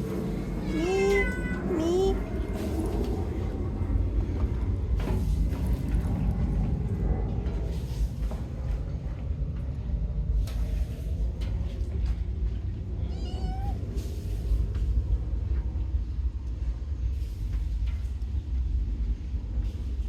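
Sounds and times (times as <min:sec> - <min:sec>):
low background rumble: 0:00.0 - 0:20.0
kitten meowing: 0:00.6 - 0:02.2, 0:13.0 - 0:13.8.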